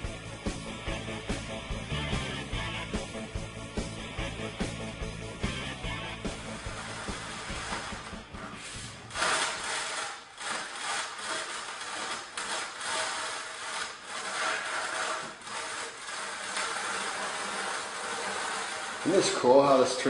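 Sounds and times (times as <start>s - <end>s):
background music: 0.0s - 9.8s
hand tool scraping wet underlayment: 6.6s - 20.0s.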